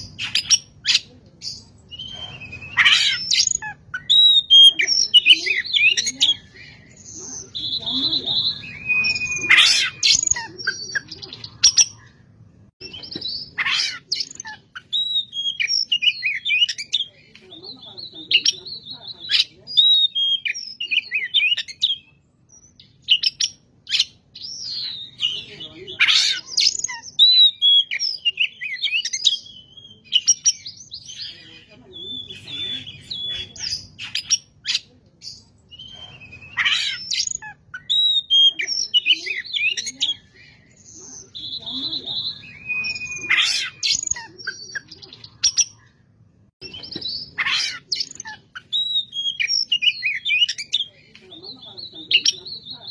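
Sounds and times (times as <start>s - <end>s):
bird singing whistled phrases: 1.9s - 6.5s, 7.4s - 11.1s, 35.7s - 40.3s, 41.2s - 45.6s, 46.6s - 50.9s
bird singing varied whistles: 7.8s - 9.5s, 41.5s - 43.4s.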